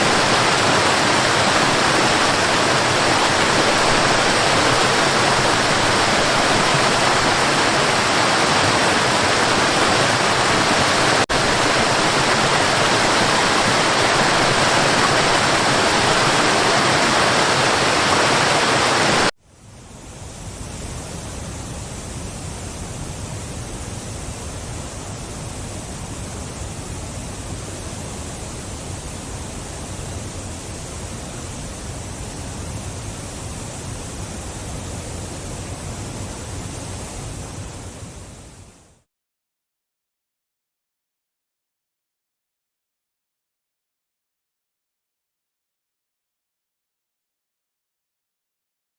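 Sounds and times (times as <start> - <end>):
waterfall rushing: 0.0 - 19.3
deeper quieter waterfall: 0.0 - 39.1.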